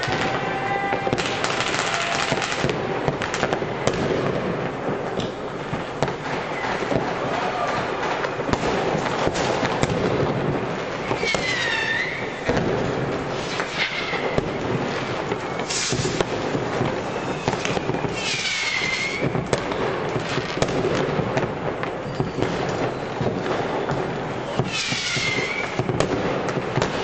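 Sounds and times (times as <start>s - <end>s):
fireworks and firecrackers crackling: 0.0s - 27.0s
falling firework whistles: 10.9s - 19.7s, 21.8s - 27.0s.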